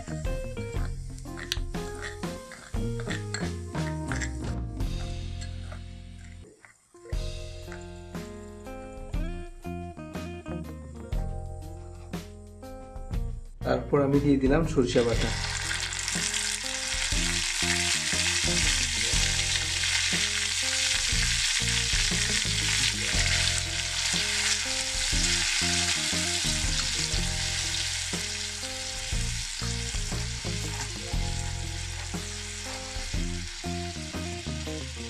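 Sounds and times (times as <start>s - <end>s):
paste sizzling in hot oil: 0.0s - 5.8s, 14.9s - 35.0s.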